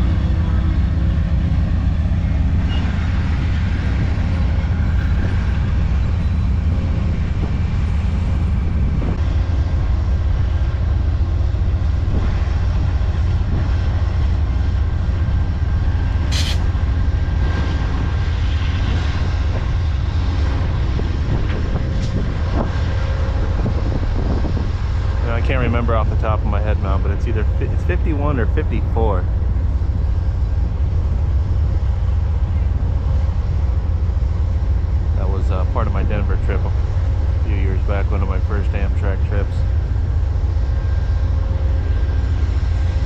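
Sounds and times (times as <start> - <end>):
diesel locomotives rumbling: 0.0 - 43.0
air hiss burst: 16.3 - 16.7.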